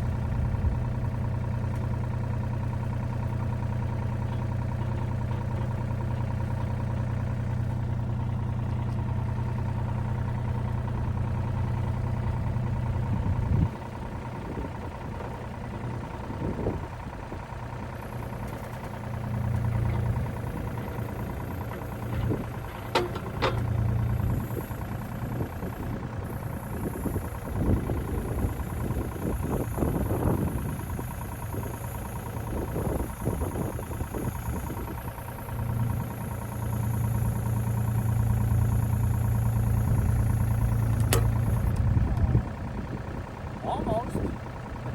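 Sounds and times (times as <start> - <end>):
diesel engine of construction machine: 0.0 - 44.9
machine knocks and clanks: 19.9 - 24.2.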